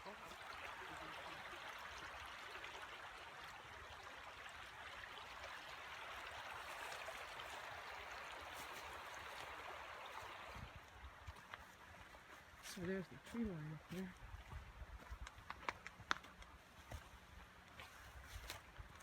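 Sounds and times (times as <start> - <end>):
creek water rushing: 0.0 - 19.0.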